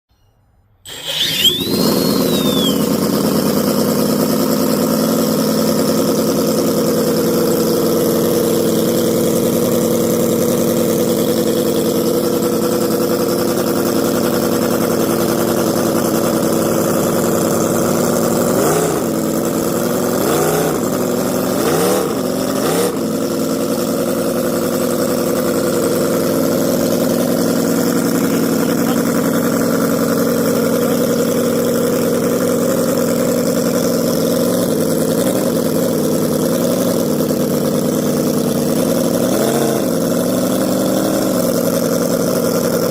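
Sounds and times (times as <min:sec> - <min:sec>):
engine throttle blips: 0:00.8 - 0:04.8, 0:13.8 - 0:36.4
sports car engine idling: 0:00.9 - 0:42.9.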